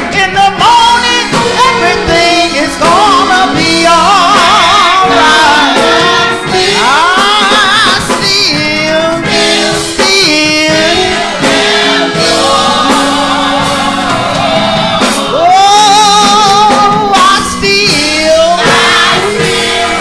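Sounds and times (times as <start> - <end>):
instrumental accompaniment: 0.0 - 20.0
lead voice singing gospel: 0.0 - 20.0
choir voices: 1.0 - 17.0, 18.3 - 20.0.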